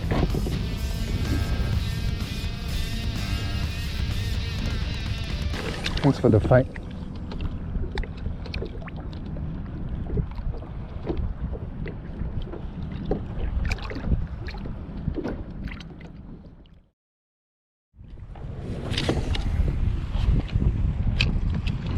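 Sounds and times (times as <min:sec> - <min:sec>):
water splashing against hull: 0:00.0 - 0:03.1, 0:03.9 - 0:16.9
wind rumble on microphone: 0:00.0 - 0:05.2, 0:06.1 - 0:16.7, 0:18.0 - 0:21.9.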